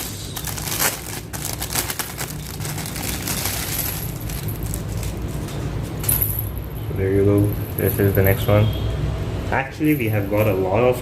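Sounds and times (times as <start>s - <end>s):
small bells jingling: 6.0s - 8.7s.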